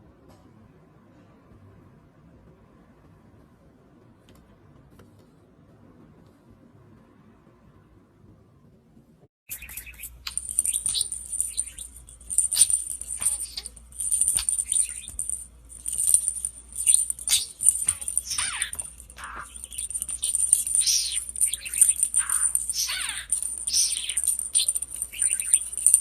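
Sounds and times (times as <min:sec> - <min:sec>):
pet bird chirping: 0:09.5 - 0:26.0.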